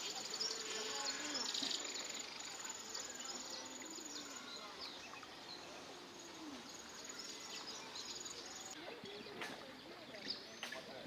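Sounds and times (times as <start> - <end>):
insects trilling: 0.0 - 5.0
faint distant voices: 0.0 - 11.0.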